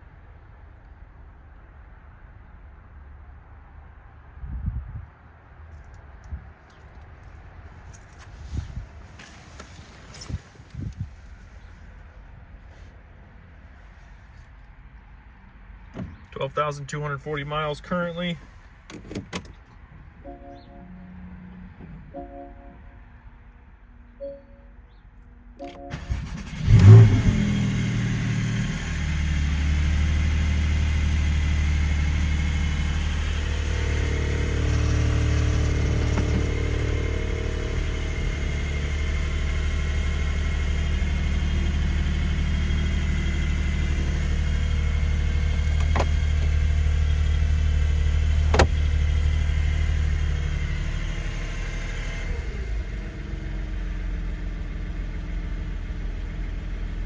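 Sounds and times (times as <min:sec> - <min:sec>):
car engine cold start and idle: 0:07.7 - 0:12.1, 0:16.4 - 0:19.6, 0:25.6 - 0:57.0.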